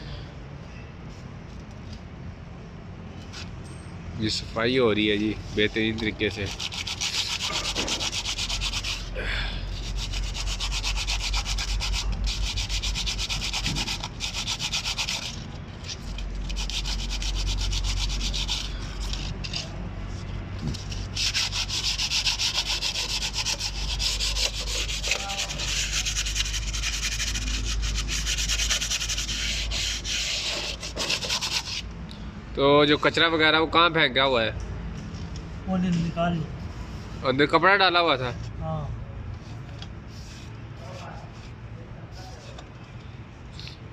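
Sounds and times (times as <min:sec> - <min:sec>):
abrasive rubbing on metal: 0:05.4 - 0:31.9.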